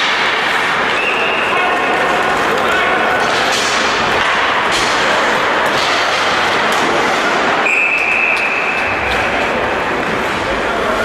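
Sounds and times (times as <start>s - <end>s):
sports hall game noise: 0.0s - 11.0s
referee's whistle: 7.6s - 8.8s.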